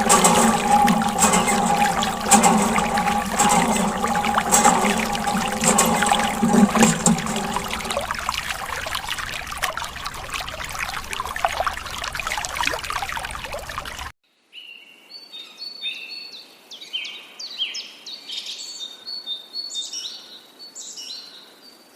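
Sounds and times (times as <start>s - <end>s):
water splashing: 0.0s - 14.1s.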